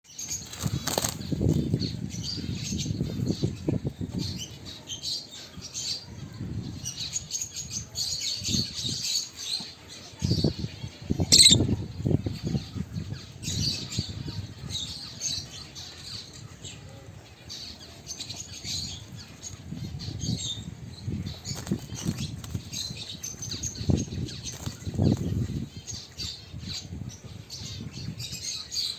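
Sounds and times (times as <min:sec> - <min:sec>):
birds fluttering wings: 0:00.1 - 0:01.8, 0:21.3 - 0:23.5, 0:24.2 - 0:25.6
high bird chirps: 0:11.2 - 0:11.9.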